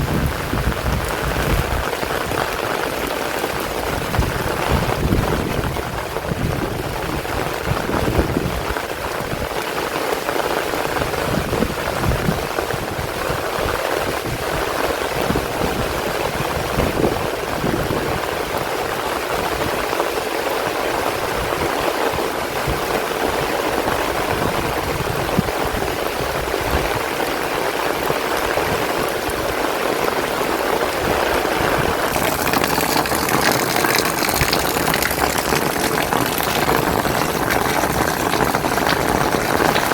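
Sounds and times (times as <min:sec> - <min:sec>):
wind buffeting microphone: 0:00.0 - 0:10.0, 0:10.6 - 0:39.9
heavy rain falling: 0:00.0 - 0:39.9.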